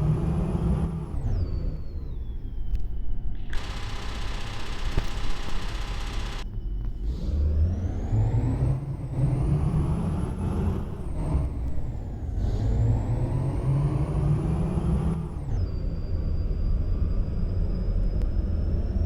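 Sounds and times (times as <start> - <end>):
truck diesel engine accelerating: 7.0 - 19.0.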